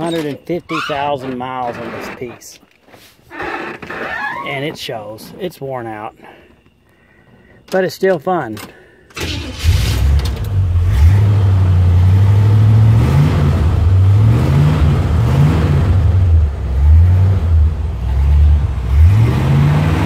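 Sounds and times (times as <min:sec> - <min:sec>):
car engine idling and revving: 0:09.3 - 0:20.0.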